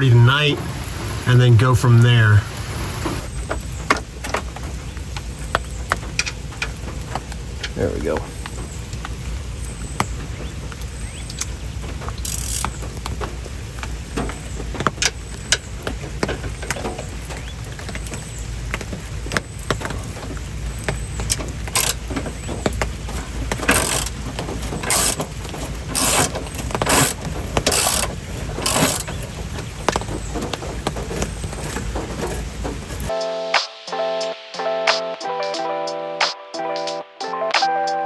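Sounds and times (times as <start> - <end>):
steady low hum: 0.0 - 4.2
hand tools clanking on metal: 19.4 - 33.1.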